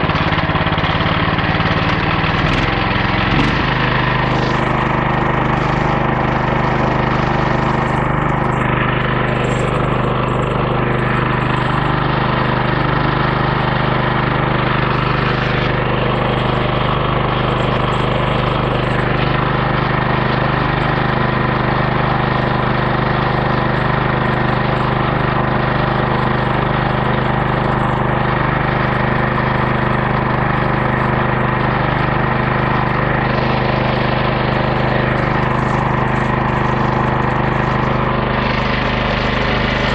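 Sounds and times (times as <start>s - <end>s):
band blade cutting log: 0.0s - 11.9s
small gas engine running: 0.0s - 39.9s.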